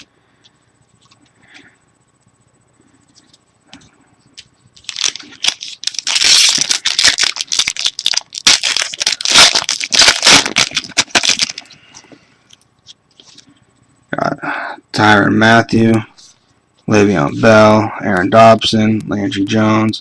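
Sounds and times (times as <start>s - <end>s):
foil wrapper crinkling and tearing: 4.8s - 11.7s.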